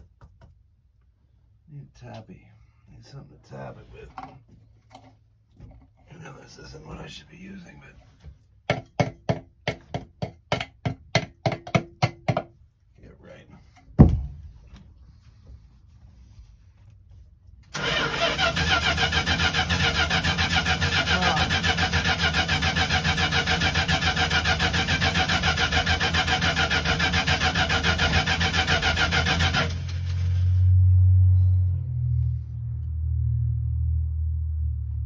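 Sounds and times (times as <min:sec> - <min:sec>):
starter motor cranking: 0:17.7 - 0:30.3
low rumble: 0:30.2 - 0:35.0.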